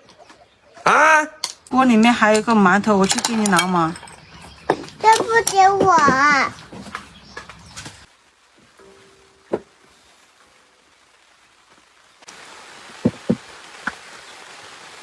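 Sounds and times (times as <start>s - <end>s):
sharp knocks: 4.7s - 7.5s, 13.0s - 13.4s
steady hiss: 8.0s - 15.0s.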